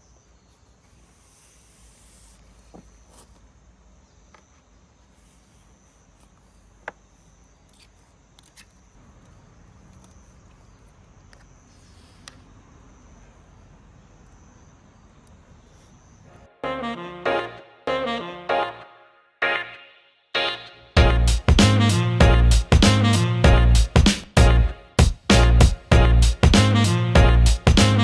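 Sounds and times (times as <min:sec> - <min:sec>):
saxophone music: 0:16.5 - 0:28.0.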